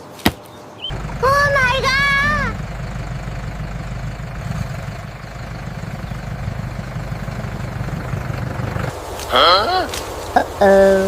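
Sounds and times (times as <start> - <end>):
tractor engine chugging: 0.9 - 9.0.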